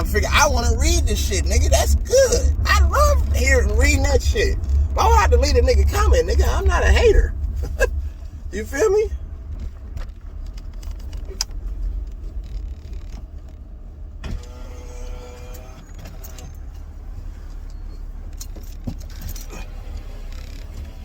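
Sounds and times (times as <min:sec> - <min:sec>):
car cabin rumble: 0:00.0 - 0:21.0
small clicks and rattles: 0:09.5 - 0:13.8, 0:15.4 - 0:21.0.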